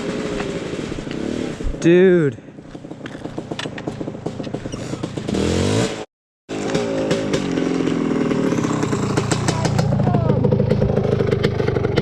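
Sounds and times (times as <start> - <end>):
dirt bike engine revving: 2.8 - 12.0.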